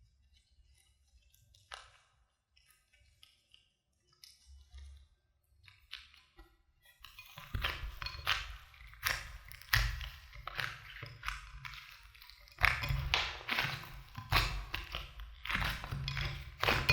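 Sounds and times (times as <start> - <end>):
small objects clicking and tapping: 5.6 - 16.9.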